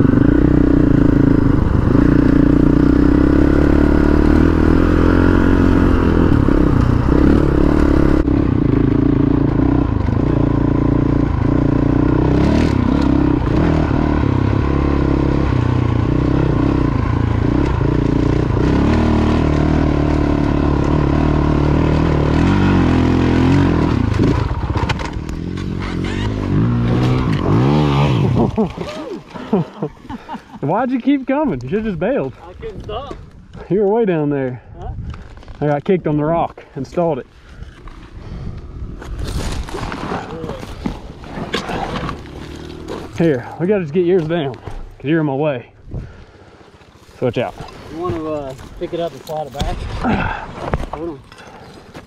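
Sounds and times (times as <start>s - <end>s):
motorcycle engine under load: 0.0s - 29.8s.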